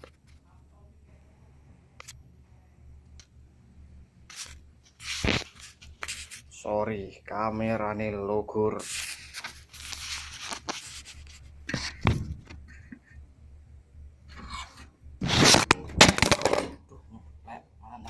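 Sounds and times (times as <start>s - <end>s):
scraping and crunching of handling: 8.8s - 12.0s, 14.4s - 16.8s.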